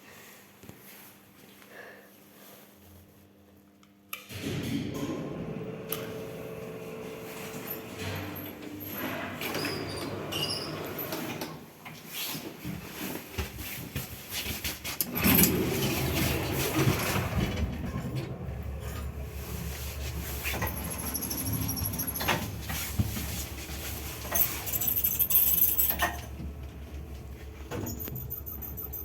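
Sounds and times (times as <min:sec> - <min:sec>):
lift doors clattering: 0:04.4 - 0:11.6, 0:15.1 - 0:29.0.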